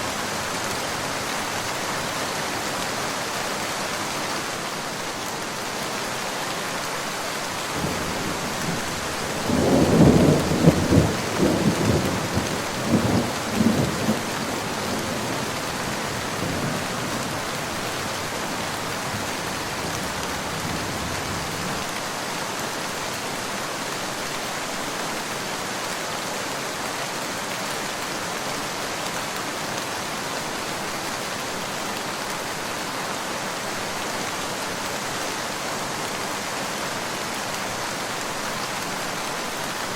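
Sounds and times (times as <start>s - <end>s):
steady rain falling: 0.0s - 39.9s
thunder rumbling: 7.8s - 15.4s.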